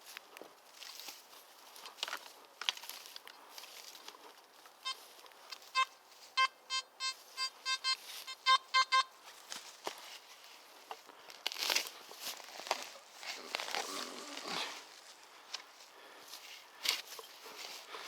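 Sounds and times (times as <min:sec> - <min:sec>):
footsteps on forest floor: 0:00.0 - 0:06.4, 0:08.0 - 0:08.4, 0:09.1 - 0:18.0
metal detector beeps: 0:04.8 - 0:05.1, 0:05.7 - 0:09.2.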